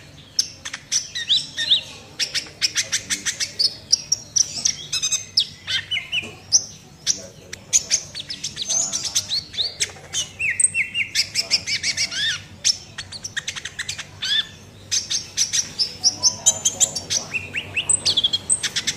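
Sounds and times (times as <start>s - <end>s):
sunbird singing: 0.0s - 18.9s.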